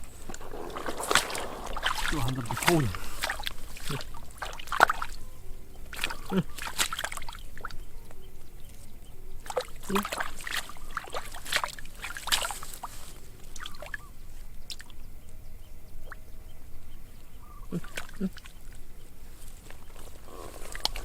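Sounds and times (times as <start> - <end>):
water splashing and sloshing: 0.0 - 7.9, 9.4 - 15.0, 17.7 - 21.0.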